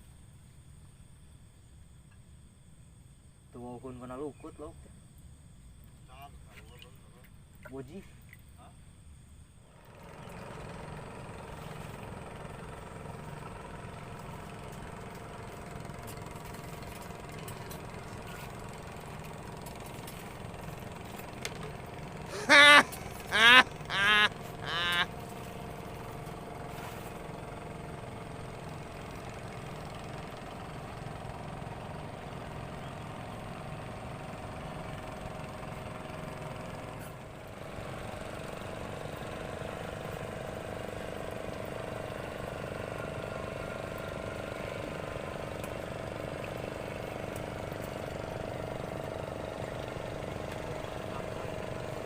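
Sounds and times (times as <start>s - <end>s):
small engine idling: 9.7s - 52.0s
loud short sliding calls: 22.3s - 25.1s.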